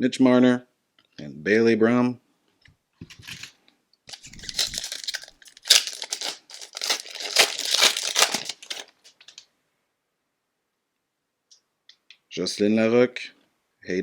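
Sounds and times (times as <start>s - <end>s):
card pack wrapper tearing and crinkling: 4.1s - 9.4s.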